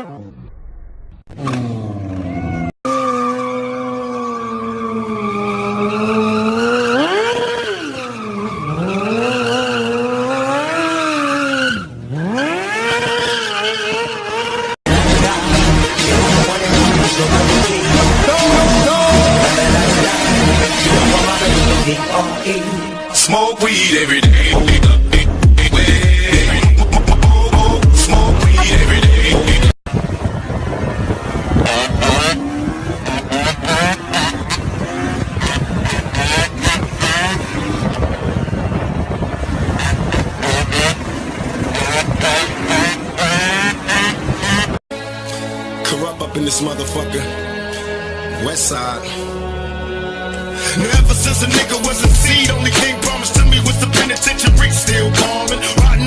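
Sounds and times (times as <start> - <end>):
engine at high revs: 1.3 - 21.9, 30.1 - 44.8.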